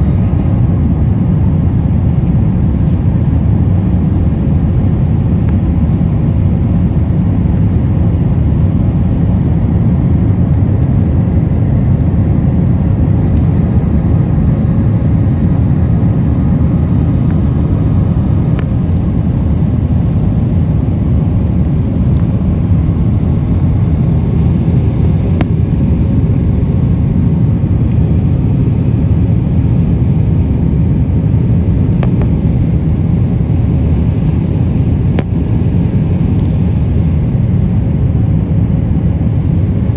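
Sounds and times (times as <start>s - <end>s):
jet engine cabin rumble: 0.0s - 39.9s.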